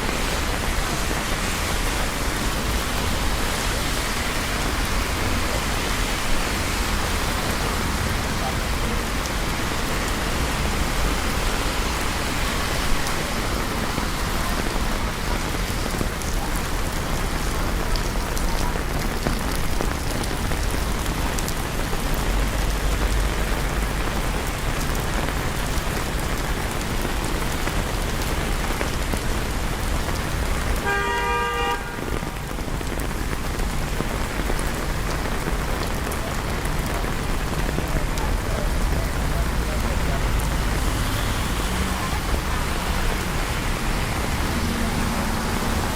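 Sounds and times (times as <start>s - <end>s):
low traffic rumble: 0.0s - 45.9s
rain falling on streets: 0.0s - 45.9s
car horn honking: 30.8s - 32.2s.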